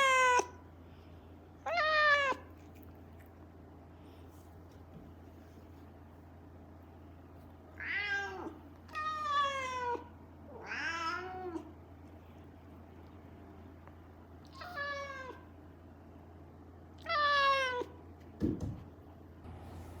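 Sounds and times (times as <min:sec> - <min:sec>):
cat meowing: 0:00.0 - 0:00.6, 0:01.7 - 0:02.5, 0:07.8 - 0:11.7, 0:14.5 - 0:15.4, 0:17.0 - 0:17.9
steady low hum: 0:00.0 - 0:17.1, 0:17.9 - 0:20.0.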